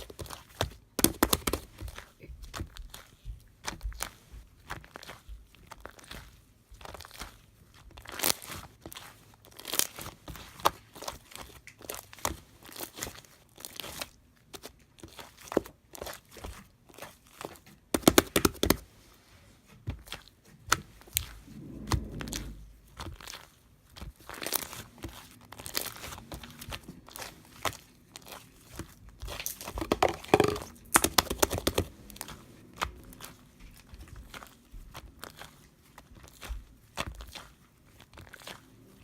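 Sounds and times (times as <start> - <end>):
slime crackling and popping: 0.0 - 3.1, 9.5 - 18.8, 23.0 - 38.6.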